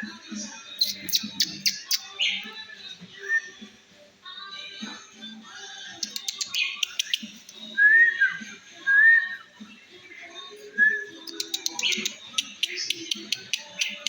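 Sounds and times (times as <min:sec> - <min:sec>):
starling clicks and chattering: 0:00.8 - 0:02.1, 0:06.0 - 0:07.7, 0:11.2 - 0:14.0
starling whistled notes: 0:10.8 - 0:14.0.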